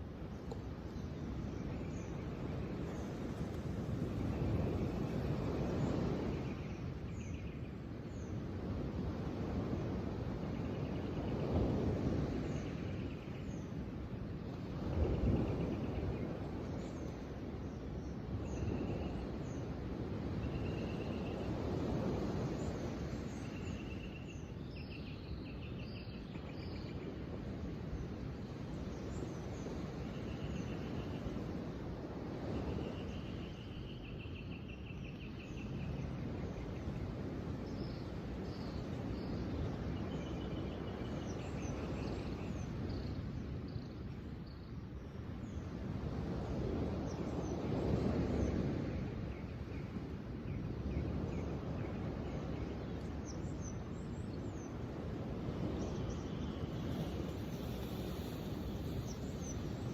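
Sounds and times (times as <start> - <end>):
birds singing trills: 0.3 - 8.4, 14.7 - 28.1, 32.4 - 45.7, 49.4 - 59.9.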